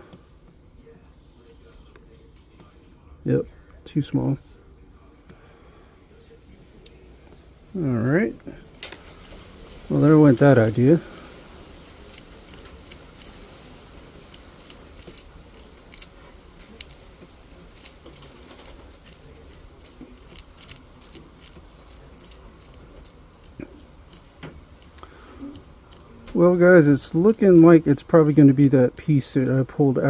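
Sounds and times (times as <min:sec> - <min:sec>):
faint steady background: 0:00.0 - 0:30.0.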